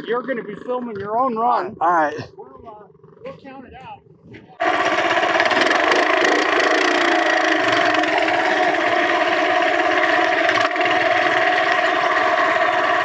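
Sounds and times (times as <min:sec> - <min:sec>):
minibike engine at high revs: 0:04.4 - 0:13.0.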